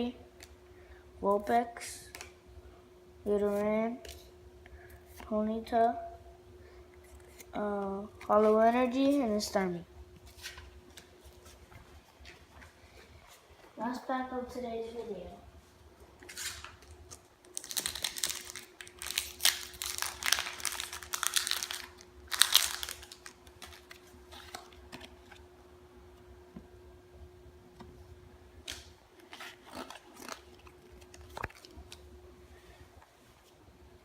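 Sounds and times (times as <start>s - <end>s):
faint steady hum: 0.0s - 34.0s
foil wrapper crinkling and tearing: 16.3s - 25.4s, 28.6s - 32.0s
cards clicking and rustling: 28.6s - 32.0s.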